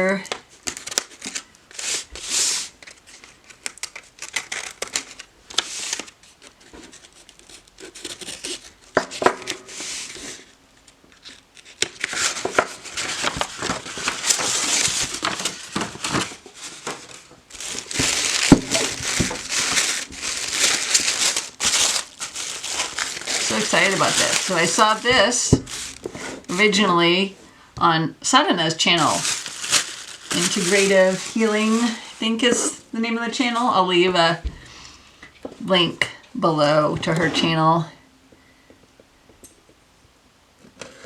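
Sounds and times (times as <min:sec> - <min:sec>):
paper crinkling and rustling: 0:00.3 - 0:27.3, 0:28.8 - 0:33.6.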